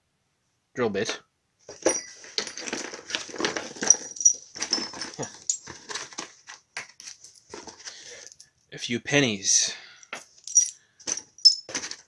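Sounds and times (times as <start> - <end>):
metal hardware clinking and rattling: 1.8 - 6.2, 10.1 - 12.0.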